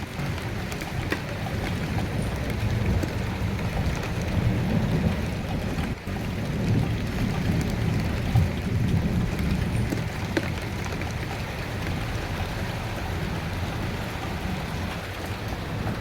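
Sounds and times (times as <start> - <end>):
low rumble of thunder: 0.0 - 16.0
steady rain falling: 0.0 - 16.0.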